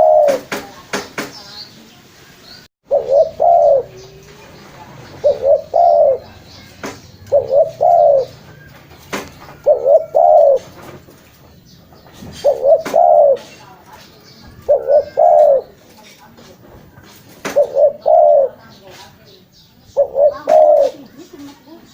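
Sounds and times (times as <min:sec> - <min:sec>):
dove cooing: 0:00.0 - 0:00.5, 0:02.8 - 0:11.0, 0:12.3 - 0:13.6, 0:14.6 - 0:15.9, 0:17.5 - 0:18.8, 0:19.9 - 0:21.9.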